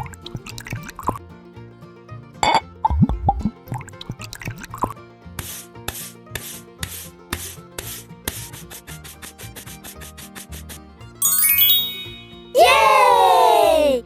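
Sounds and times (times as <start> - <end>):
faint background music: 0.0 - 11.2, 12.0 - 14.0
scraping strokes: 5.4 - 10.5.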